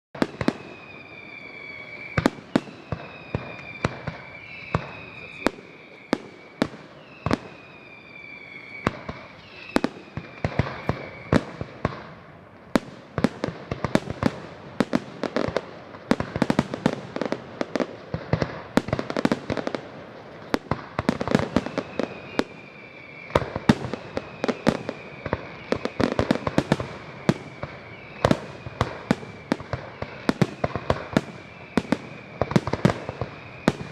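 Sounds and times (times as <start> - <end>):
fireworks bangs and crackling: 0.1 - 33.9
falling high whistle: 0.2 - 11.9, 21.1 - 33.9.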